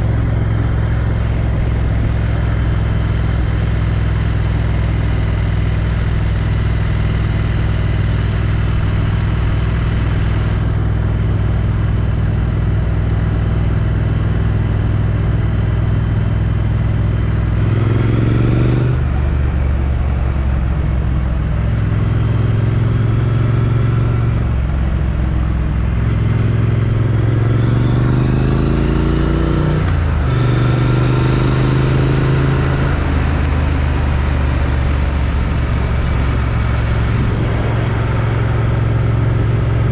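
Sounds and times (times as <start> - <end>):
motorcycle engine revving: 0.0 - 15.0, 16.7 - 39.9
wind rush: 34.2 - 39.9.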